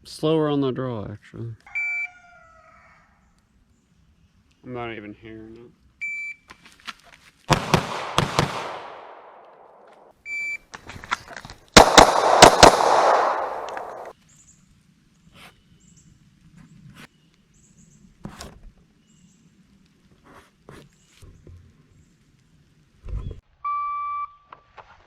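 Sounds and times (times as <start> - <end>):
pistol shots with echo: 7.5 - 9.8, 11.8 - 14.1.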